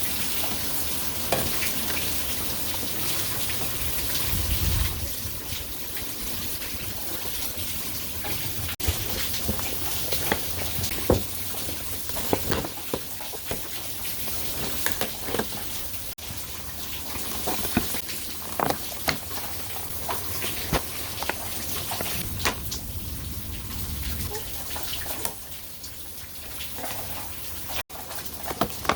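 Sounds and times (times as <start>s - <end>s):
steady rain falling: 0.0s - 28.9s
sharp taps of raindrops: 5.4s - 22.8s.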